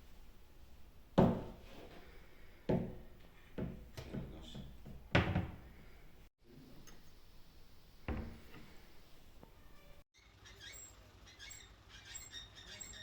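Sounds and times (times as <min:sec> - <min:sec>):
dull knocks and thuds: 0:01.2 - 0:01.6, 0:03.6 - 0:05.7, 0:08.1 - 0:08.6.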